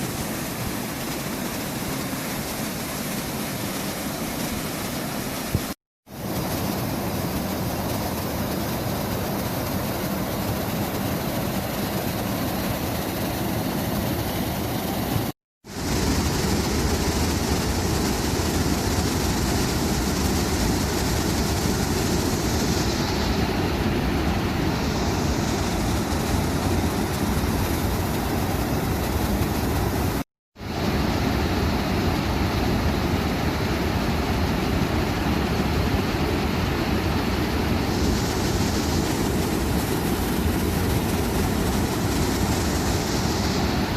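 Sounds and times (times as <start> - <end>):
waterfall rushing: 0.0 - 11.4, 15.7 - 30.2, 36.0 - 43.9.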